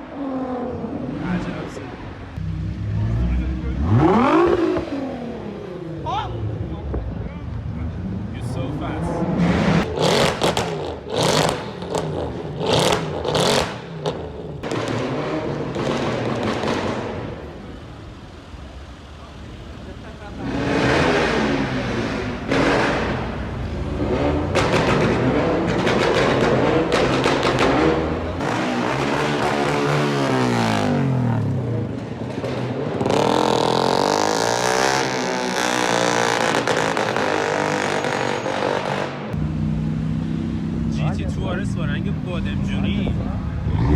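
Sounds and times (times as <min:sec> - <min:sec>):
car engine revving: 0:00.2 - 0:43.9.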